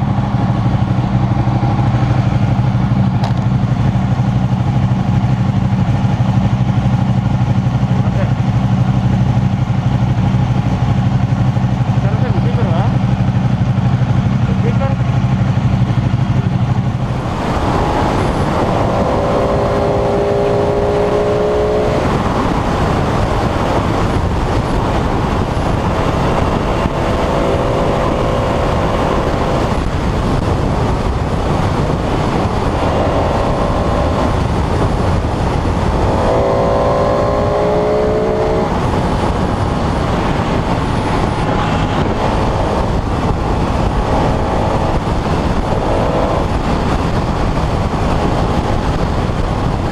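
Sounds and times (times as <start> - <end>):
low steady engine hum: 0.0 - 49.9
motorcycle engine revving: 0.0 - 49.9
wind rush on microphone: 0.0 - 49.9.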